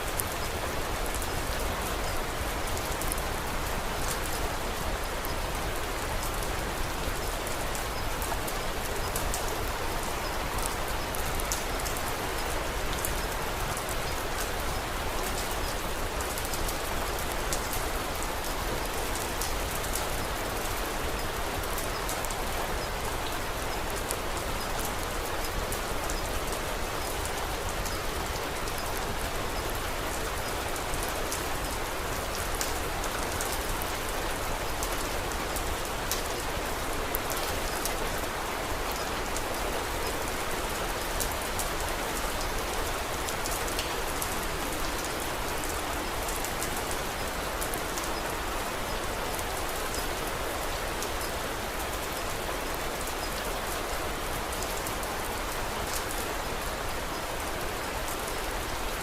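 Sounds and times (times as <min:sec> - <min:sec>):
raindrop ticks: 0:43.4 - 0:43.9.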